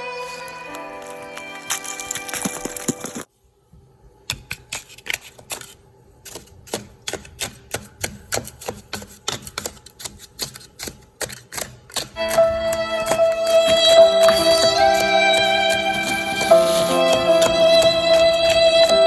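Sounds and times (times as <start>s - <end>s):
music: 0.0s - 3.2s, 12.2s - 19.0s.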